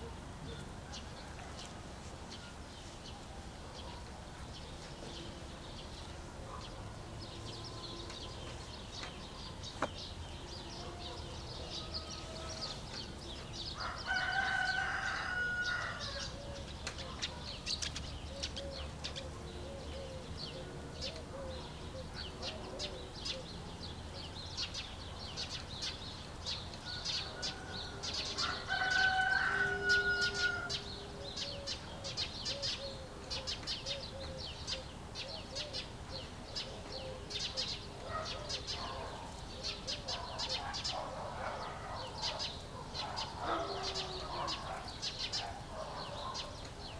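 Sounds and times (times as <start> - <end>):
songbirds chirping: 0.0 - 46.9
rooster crowing: 13.8 - 16.3, 27.3 - 31.0.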